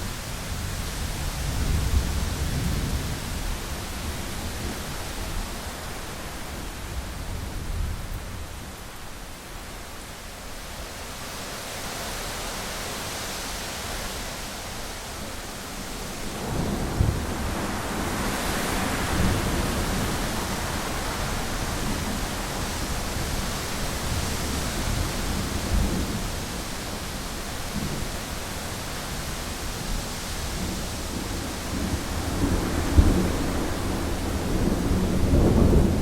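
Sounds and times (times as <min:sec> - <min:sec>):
heavy rain on a window: 0:00.0 - 0:36.0
thunder rumbling: 0:30.6 - 0:36.0.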